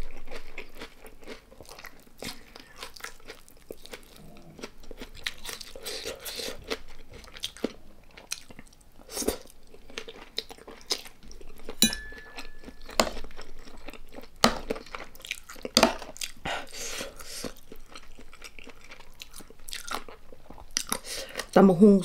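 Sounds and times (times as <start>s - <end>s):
wet chewing: 0.0s - 21.6s
raw vegetables crunching: 17.0s - 21.6s.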